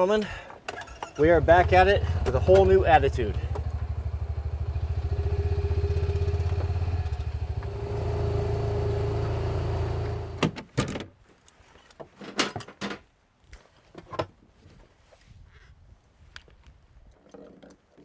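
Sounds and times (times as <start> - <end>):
vehicle engine running: 1.2 - 10.4.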